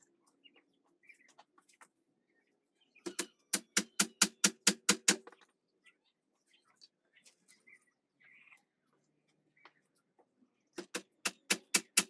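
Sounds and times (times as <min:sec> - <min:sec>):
hammer striking: 0:03.1 - 0:05.2, 0:10.8 - 0:12.0.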